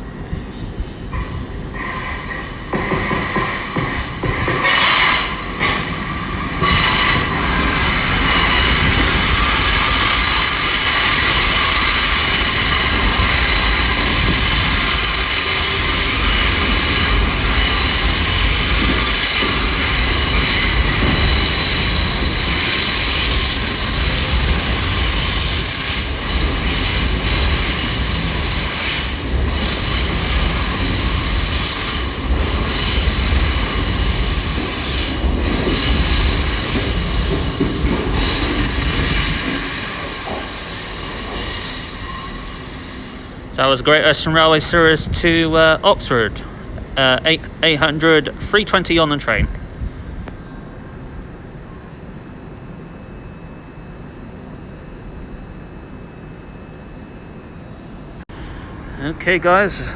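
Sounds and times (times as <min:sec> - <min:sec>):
train wheels squealing: 0:00.0 - 0:43.7.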